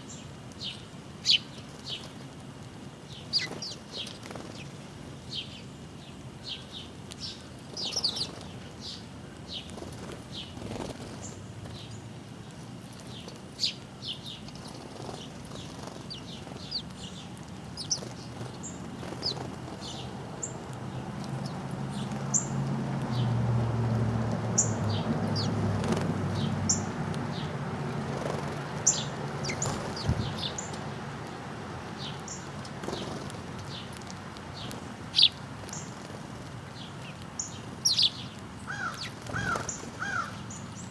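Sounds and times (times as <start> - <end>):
songbirds chirping: 0.0 - 40.9
low engine hum: 17.9 - 35.1.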